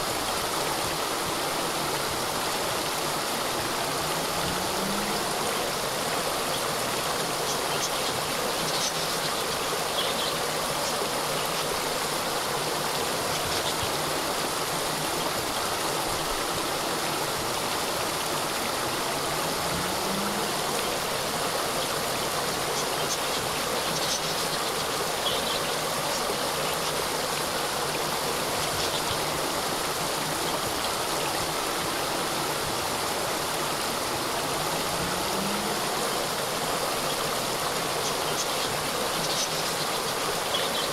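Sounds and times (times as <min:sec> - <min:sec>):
waterfall cascading: 0:00.0 - 0:40.9.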